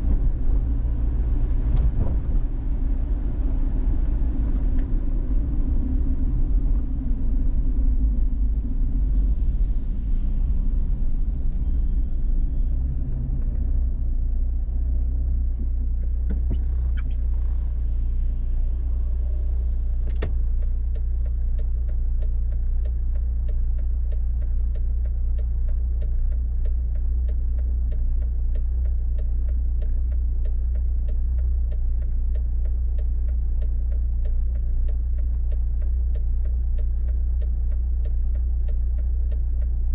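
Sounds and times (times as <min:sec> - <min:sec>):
car road and engine rumble: 0:00.0 - 0:39.9
rapid regular ticking: 0:20.4 - 0:39.9.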